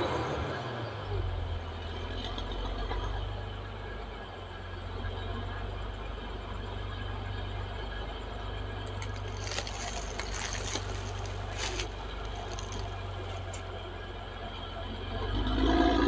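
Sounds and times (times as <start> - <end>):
bulldozer diesel engine rumble: 0.0 - 16.0
noisy scraping: 8.8 - 13.8.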